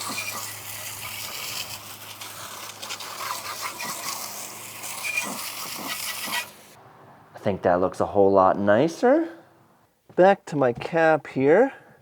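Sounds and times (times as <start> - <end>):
brush scrubbing: 0.0 - 6.8.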